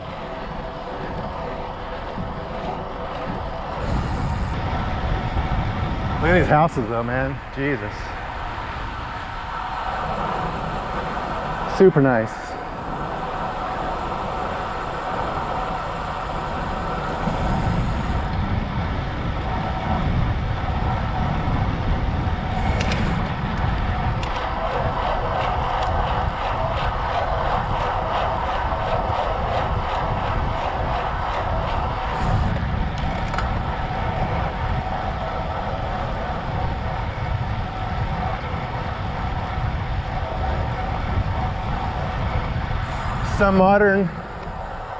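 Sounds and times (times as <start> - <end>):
bike tyre road noise: 0.0 - 44.9
wind on microphone: 0.0 - 44.9.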